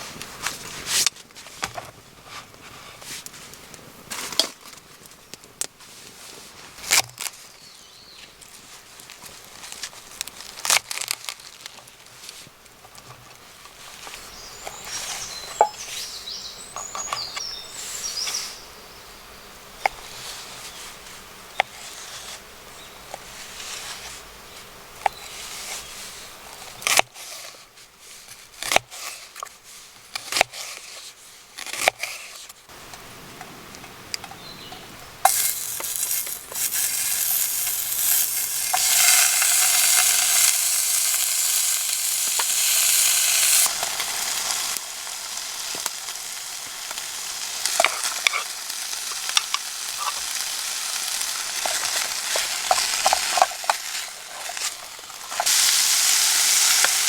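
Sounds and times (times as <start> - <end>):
clicks of cooking gear: 35.3 - 44.8, 51.3 - 55.8
food sizzling in hot pan: 35.3 - 57.0.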